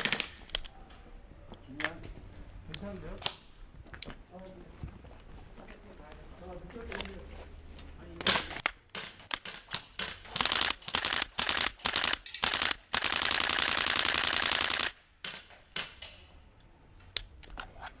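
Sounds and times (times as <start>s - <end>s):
airsoft rifle firing: 0.0s - 0.6s, 8.2s - 16.3s.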